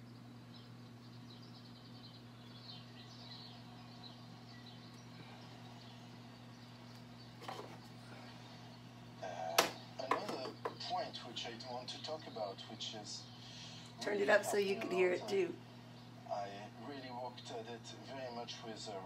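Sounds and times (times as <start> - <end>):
faint bird chirps: 0.0 - 13.9
low steady hum: 0.0 - 19.0.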